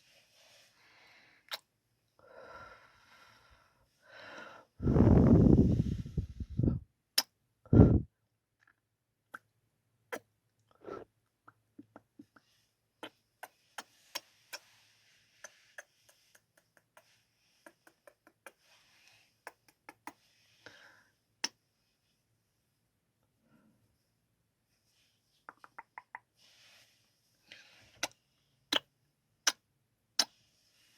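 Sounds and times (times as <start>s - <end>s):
low mouth puffs: 4.8s - 6.8s, 15.4s - 18.8s
wet kissing lip smacks: 25.5s - 26.2s.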